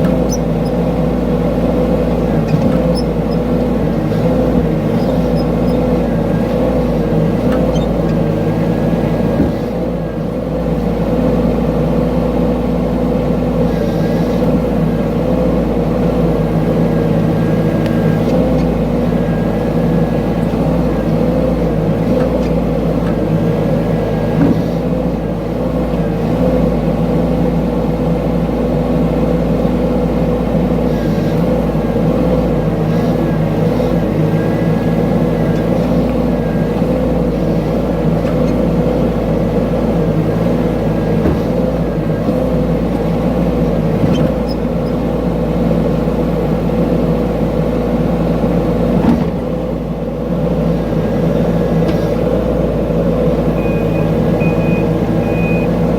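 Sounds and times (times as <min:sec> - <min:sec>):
excavator engine droning: 0:00.0 - 0:55.9.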